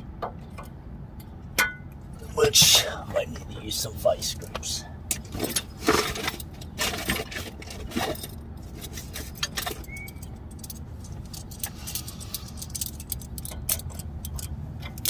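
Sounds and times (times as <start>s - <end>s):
metal tools clinking and scraping: 4.6s - 15.0s.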